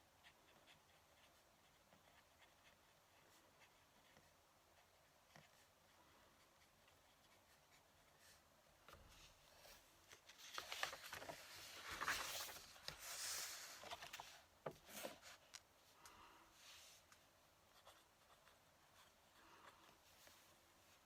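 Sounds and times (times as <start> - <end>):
pen nib scratching on paper: 0.1 - 7.9.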